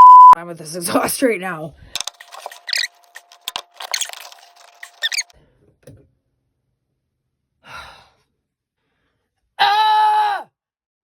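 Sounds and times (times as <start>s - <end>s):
metal parts squeaking: 2.0s - 5.4s.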